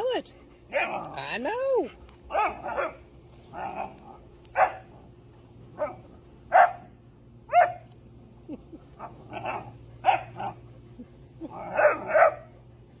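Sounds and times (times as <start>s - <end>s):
dog barking: 2.3s - 3.0s, 4.6s - 4.9s, 5.8s - 6.9s, 7.5s - 7.8s, 9.4s - 10.6s, 11.7s - 12.5s.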